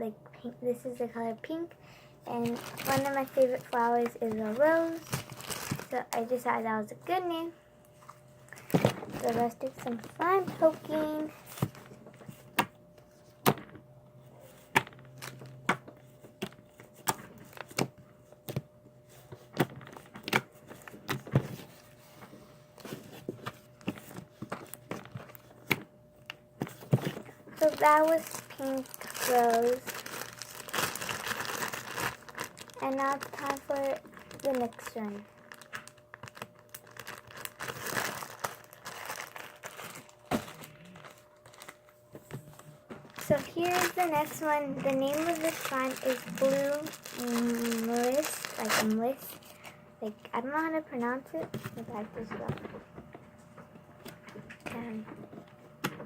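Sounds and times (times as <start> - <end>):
slime crinkling: 2.3 - 7.5, 8.4 - 12.0, 26.7 - 41.9, 42.5 - 50.2.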